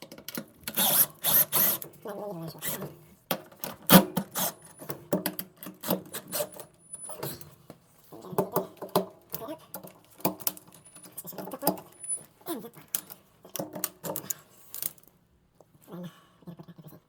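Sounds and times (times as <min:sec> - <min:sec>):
scraping and clicking of parts: 0:02.7 - 0:15.2.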